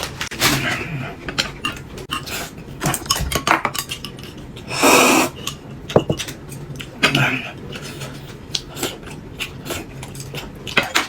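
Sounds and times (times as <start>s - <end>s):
dishes and utensils clinking: 5.5s - 6.6s.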